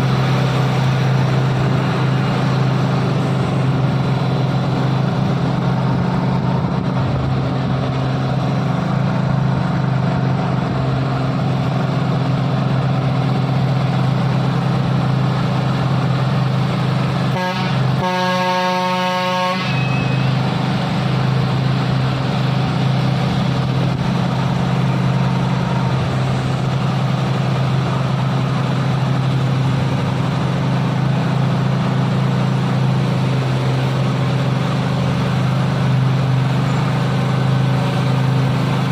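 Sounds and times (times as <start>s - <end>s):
diesel truck engine under load: 0.0s - 38.9s
vehicle horn toot: 17.3s - 20.4s.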